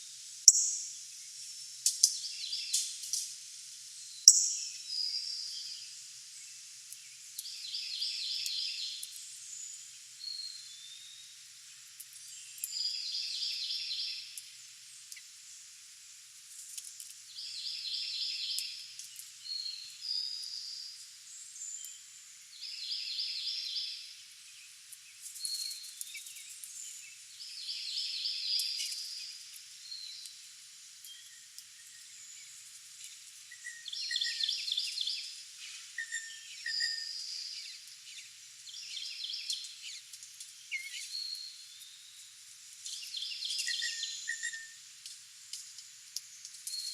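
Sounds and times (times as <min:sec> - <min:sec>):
songbird trilled song: 0:00.5 - 0:00.9, 0:04.0 - 0:06.0, 0:07.0 - 0:11.3, 0:12.2 - 0:14.4, 0:17.3 - 0:30.4, 0:31.0 - 0:32.6, 0:33.5 - 0:42.2, 0:42.9 - 0:44.8, 0:46.3 - 0:46.9.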